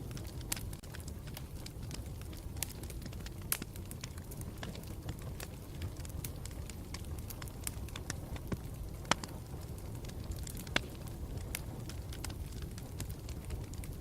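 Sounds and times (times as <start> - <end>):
campfire flames rumbling: 0.0 - 14.0
wood crackling and popping: 0.0 - 14.0.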